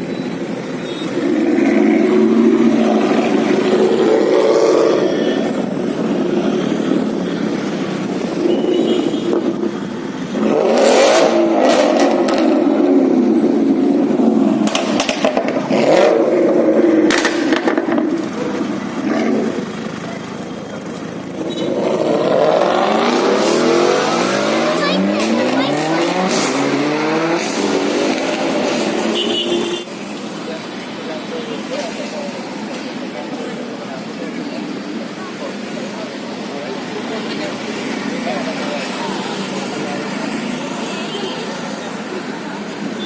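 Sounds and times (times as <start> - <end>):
performance car engine revving: 1.1 - 20.4, 21.1 - 29.6
exhaust cracks: 10.4 - 22.3.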